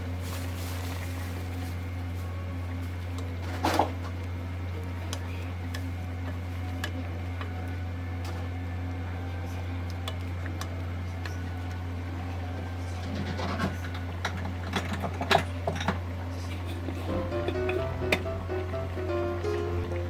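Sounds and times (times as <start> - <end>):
low machine hum: 16.0 - 20.0.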